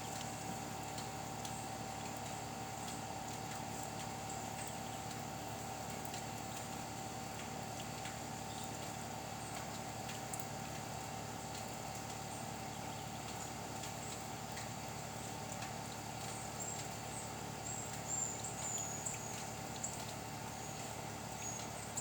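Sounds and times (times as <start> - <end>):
faint ticks: 0.0 - 10.9, 15.4 - 22.0
constant hum: 0.0 - 22.0.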